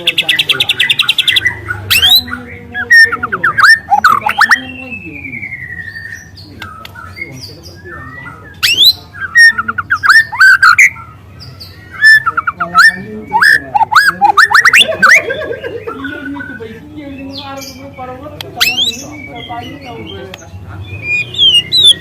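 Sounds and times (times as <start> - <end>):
bird singing whistles: 2.8 - 11.1, 11.8 - 15.0, 18.6 - 20.0, 21.0 - 22.0.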